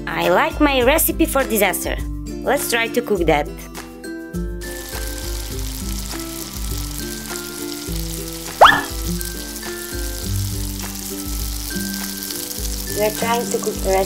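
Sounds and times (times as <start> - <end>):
light background music: 0.0 - 14.0
frying sizzle: 4.6 - 14.0.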